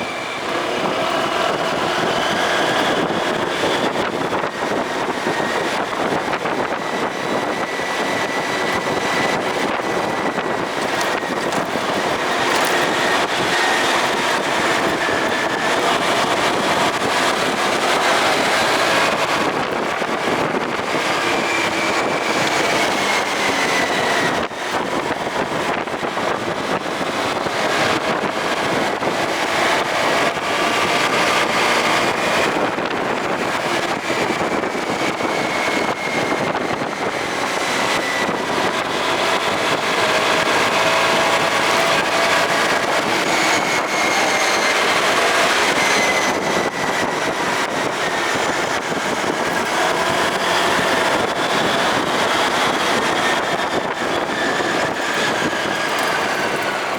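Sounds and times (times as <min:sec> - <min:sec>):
wind noise on microphone: 0:00.0 - 0:56.9
motorcycle engine running: 0:07.9 - 0:21.4, 0:46.5 - 0:56.9.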